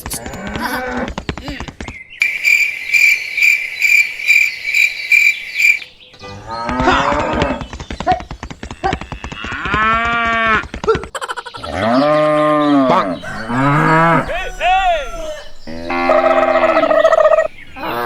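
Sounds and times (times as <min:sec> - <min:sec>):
cricket-like chirping: 0:02.2 - 0:06.1, 0:13.0 - 0:18.0
cattle mooing: 0:11.7 - 0:18.0.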